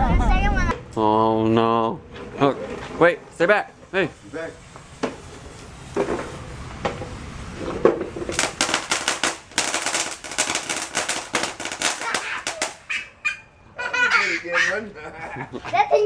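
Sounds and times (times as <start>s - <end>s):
firecrackers banging: 2.2s - 13.2s.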